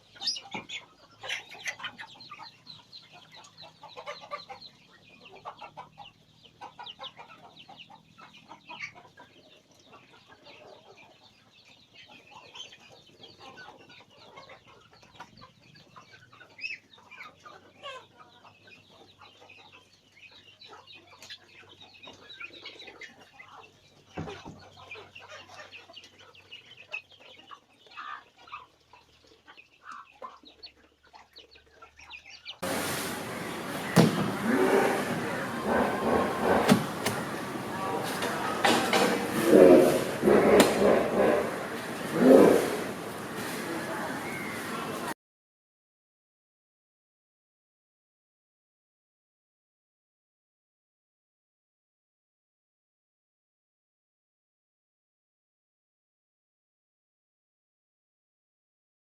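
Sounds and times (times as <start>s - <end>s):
chickens clucking: 0.0s - 45.2s
loud rushing noise: 32.6s - 45.1s.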